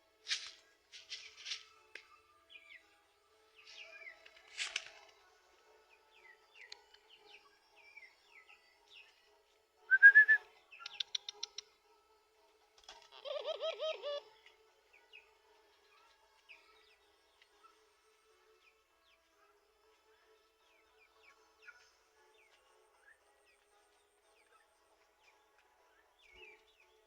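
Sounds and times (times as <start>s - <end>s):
dove cooing: 13.0s - 14.3s.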